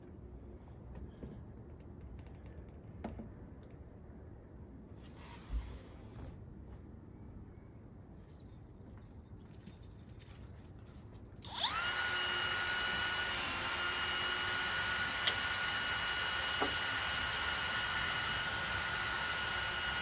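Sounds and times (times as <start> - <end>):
power drill motor whine: 11.4 - 20.0.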